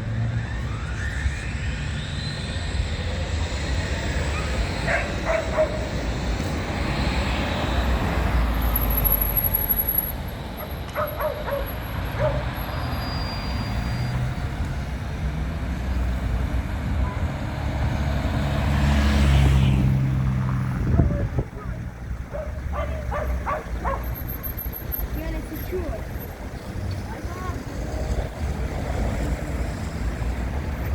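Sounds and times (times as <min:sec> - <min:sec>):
traffic: 0:00.0 - 0:30.9
tram rumbling: 0:00.0 - 0:30.9.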